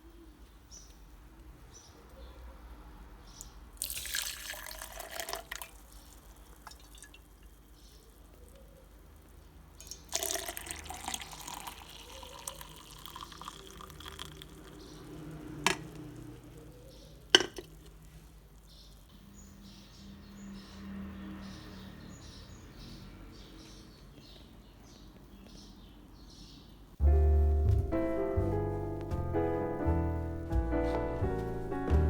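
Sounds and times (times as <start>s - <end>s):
water running: 3.8s - 7.6s, 9.8s - 16.4s.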